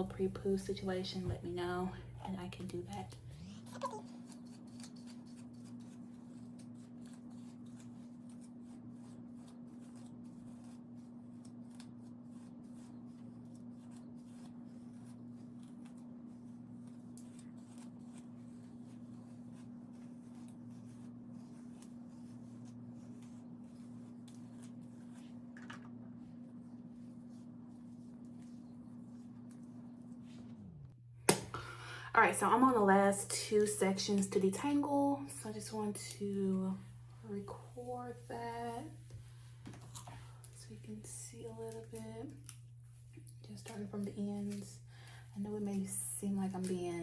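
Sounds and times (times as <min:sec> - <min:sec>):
low hum: 0:00.0 - 0:08.2, 0:18.0 - 0:47.0
comb rustling through hair: 0:02.8 - 0:30.9, 0:33.6 - 0:47.0.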